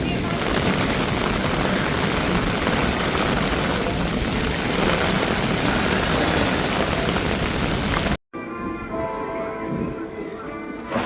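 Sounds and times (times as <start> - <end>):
heavy rain pouring: 0.0 - 8.2.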